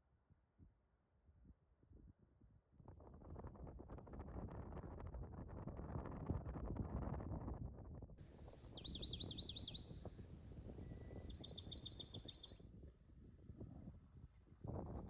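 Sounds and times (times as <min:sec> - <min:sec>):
songbird trilling: 0:08.2 - 0:10.1, 0:10.8 - 0:12.6.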